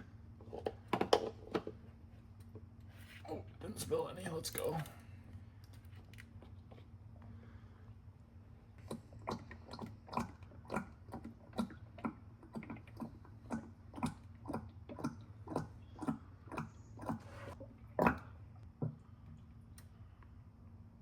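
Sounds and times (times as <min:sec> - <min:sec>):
oil glugging from bottle: 0:08.8 - 0:19.0.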